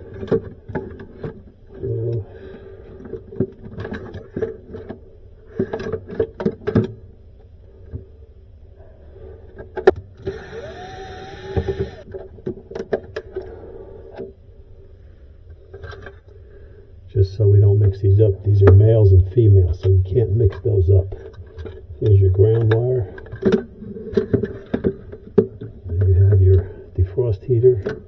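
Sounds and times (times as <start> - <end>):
steady low hum: 7.1 - 12.1
brief rising whine: 10.3 - 12.0.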